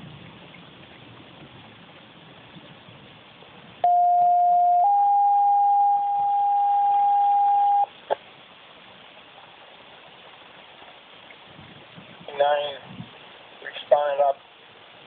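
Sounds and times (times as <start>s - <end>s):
two-tone pager alert: 3.8s - 7.9s
radio hiss: 12.2s - 14.5s.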